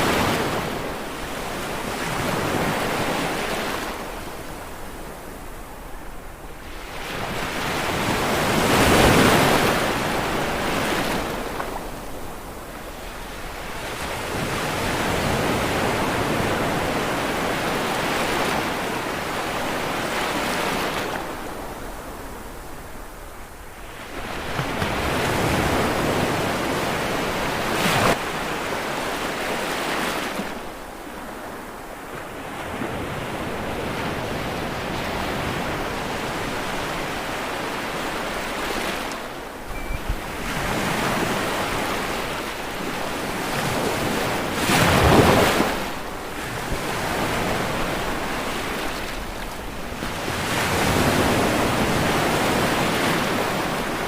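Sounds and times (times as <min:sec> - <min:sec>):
ocean waves breaking: 0:23.7 - 0:54.0.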